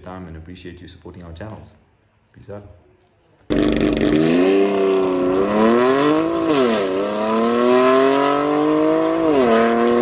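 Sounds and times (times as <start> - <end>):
diesel car engine accelerating: 3.5 - 10.0.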